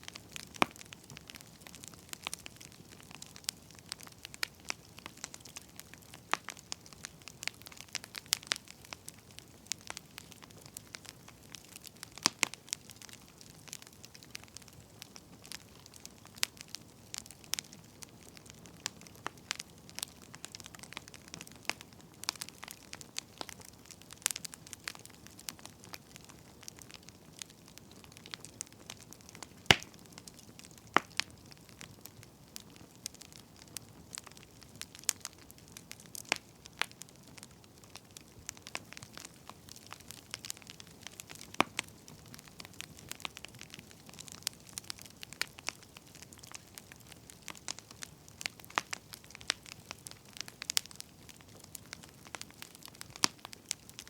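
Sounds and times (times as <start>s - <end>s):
faint low hiss: 0.0s - 54.0s
firewood crackling and popping: 0.0s - 54.0s.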